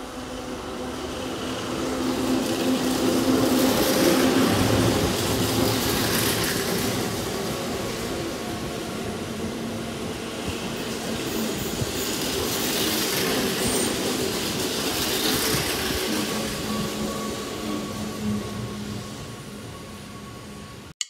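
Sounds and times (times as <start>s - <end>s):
train wheel rumble on rails: 0.0s - 20.9s.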